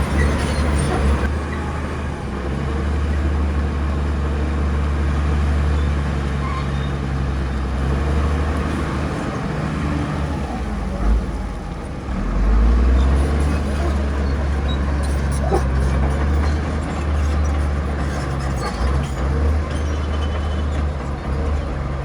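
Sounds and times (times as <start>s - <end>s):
heavy diesel engine rumbling: 0.0s - 22.0s.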